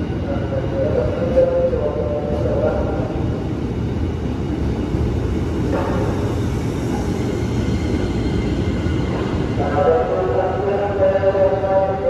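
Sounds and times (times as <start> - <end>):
train wheels rumbling: 0.0 - 12.0.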